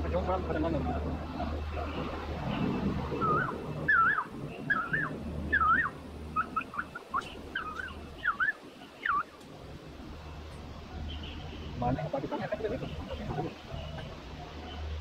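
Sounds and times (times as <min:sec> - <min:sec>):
bird whistling song: 0:03.1 - 0:09.3.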